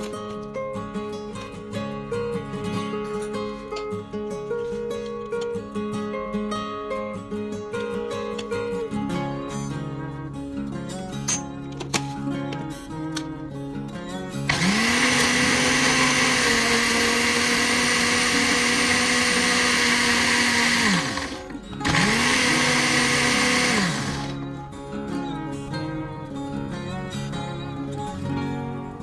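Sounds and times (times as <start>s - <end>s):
electric blender motor: 14.5s - 24.7s.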